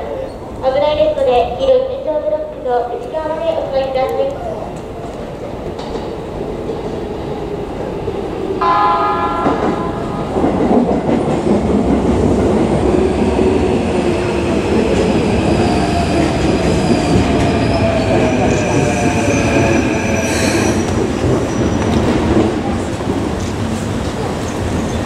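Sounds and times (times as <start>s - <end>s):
train wheels running on rails: 2.4s - 25.0s
train horn: 8.6s - 10.4s.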